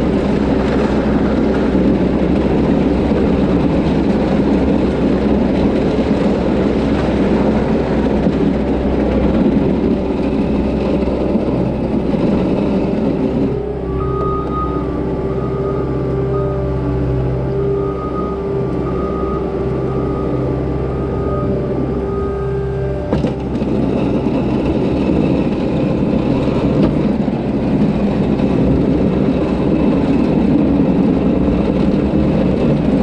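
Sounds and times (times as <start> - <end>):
diesel engine running hard: 0.0 - 33.0.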